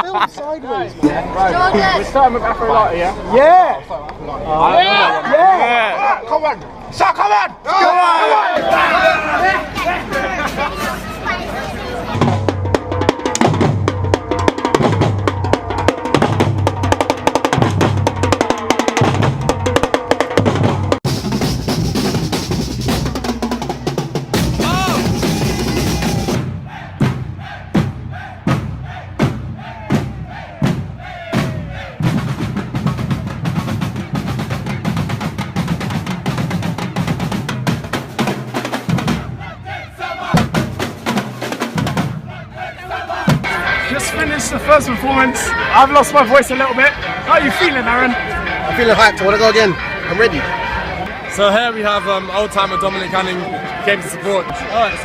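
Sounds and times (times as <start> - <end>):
samba band drumming: 8.6 - 55.0
deep bass drums: 12.1 - 38.2
snare drums: 12.1 - 46.6.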